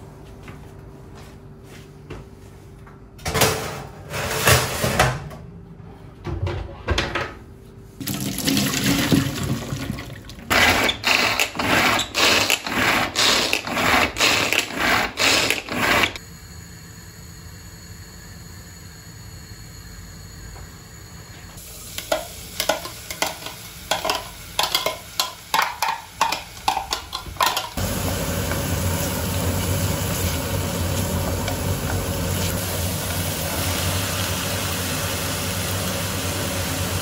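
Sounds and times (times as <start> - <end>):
water splashing in a sink: 8.0 - 10.4.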